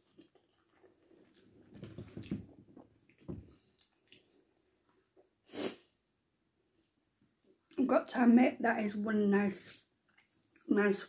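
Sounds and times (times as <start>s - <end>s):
person chewing food: 0.0s - 5.4s.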